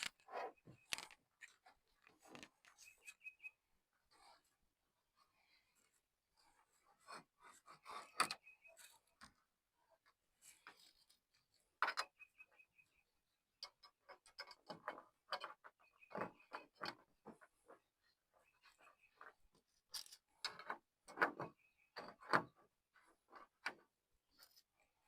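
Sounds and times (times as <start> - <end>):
tools clicking and knocking: 0.0 - 2.8.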